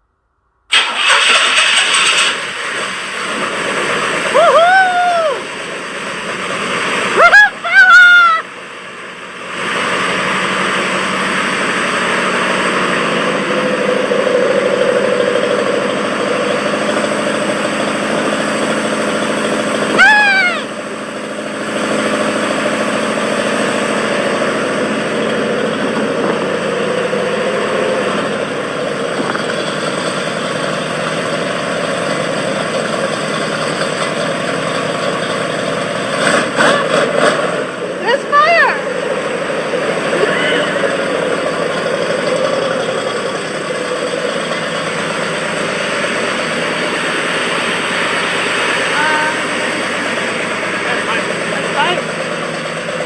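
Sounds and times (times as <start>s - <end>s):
person shouting: 4.3s - 5.5s, 7.2s - 8.5s, 19.9s - 20.8s, 38.0s - 38.9s, 40.1s - 41.3s, 48.9s - 49.6s
car engine revving through exhaust: 8.5s - 20.0s, 20.7s - 53.0s.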